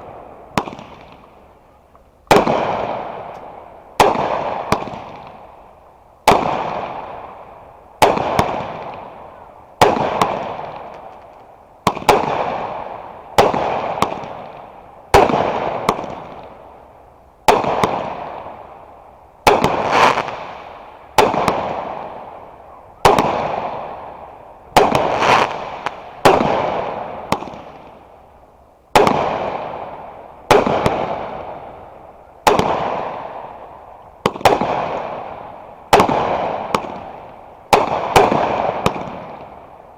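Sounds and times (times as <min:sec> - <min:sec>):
firework bangs: 0:00.0 - 0:01.5, 0:02.2 - 0:05.6, 0:06.2 - 0:07.4, 0:08.0 - 0:16.6, 0:17.4 - 0:18.8, 0:19.4 - 0:28.1, 0:28.9 - 0:39.7
firework crackle: 0:19.4 - 0:39.9.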